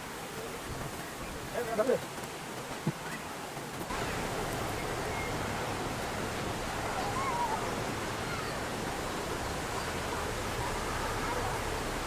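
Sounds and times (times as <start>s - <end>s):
sea surf rushing: 3.8s - 12.0s.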